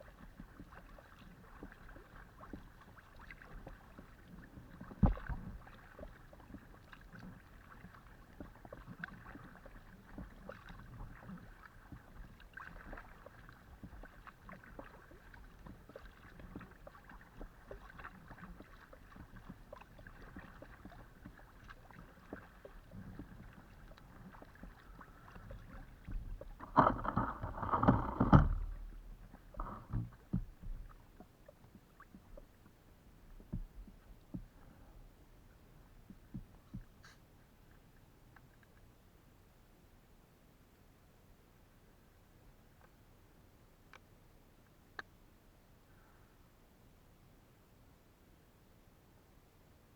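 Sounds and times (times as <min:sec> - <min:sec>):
paddle splashes: 0:00.0 - 0:38.6
water noise: 0:00.0 - 0:38.7
knocking on kayak hull: 0:26.6 - 0:28.9.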